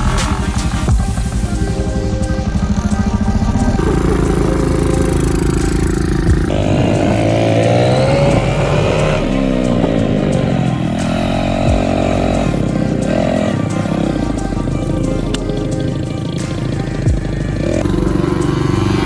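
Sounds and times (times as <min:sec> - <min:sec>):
dirtbike engine revving: 0:00.0 - 0:19.0.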